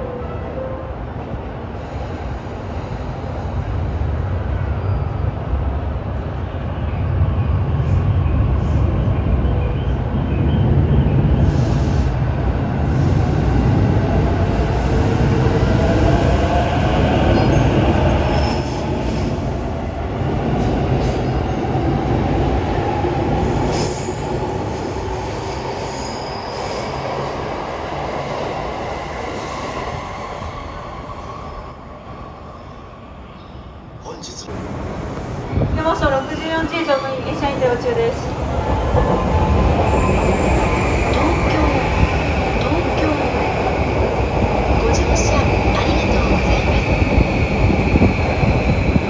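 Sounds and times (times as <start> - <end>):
train wheels rumbling on rail: 34.5 - 49.0.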